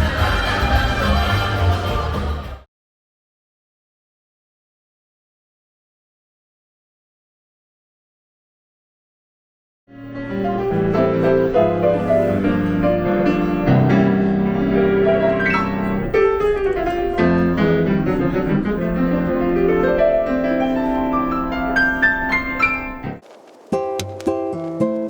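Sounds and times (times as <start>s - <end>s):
instrumental piano music: 10.0s - 23.2s.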